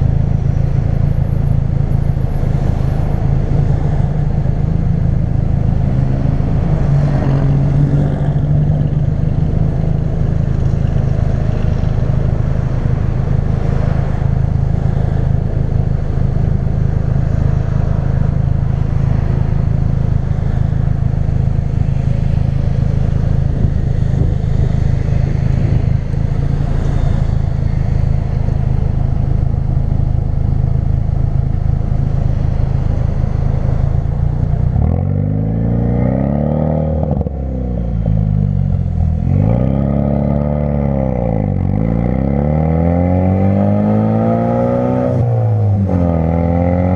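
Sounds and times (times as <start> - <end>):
car engine droning: 0.0 - 46.9.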